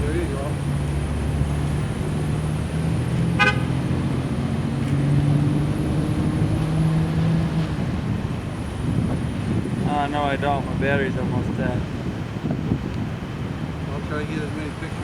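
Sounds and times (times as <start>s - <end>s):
car engine running: 0.0s - 11.9s
car horn toot: 3.3s - 3.8s.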